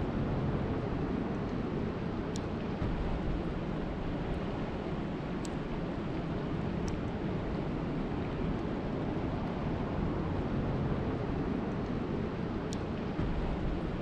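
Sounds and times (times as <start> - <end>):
faint ticks: 2.3 - 2.5, 5.4 - 5.6, 6.8 - 7.1.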